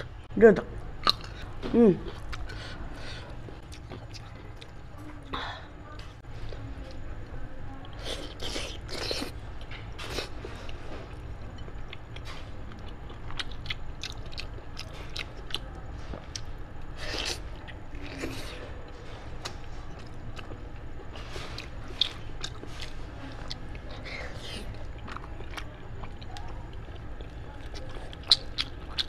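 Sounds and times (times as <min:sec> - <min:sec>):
person chewing meat: 0:01.0 - 0:02.6, 0:08.0 - 0:29.0
mouth clicks and crunches: 0:11.8 - 0:29.0.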